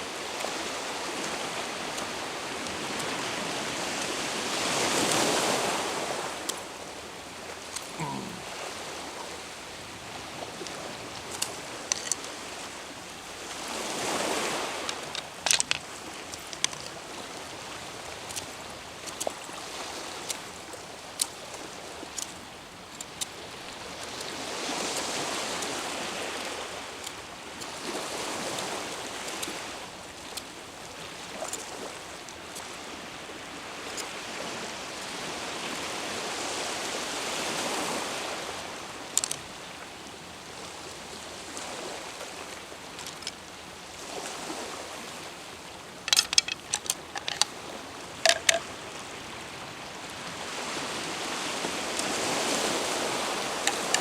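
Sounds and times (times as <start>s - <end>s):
sea waves washing on shore: 0.0s - 54.0s
sharp clicks and taps: 46.1s - 47.5s, 48.2s - 48.6s.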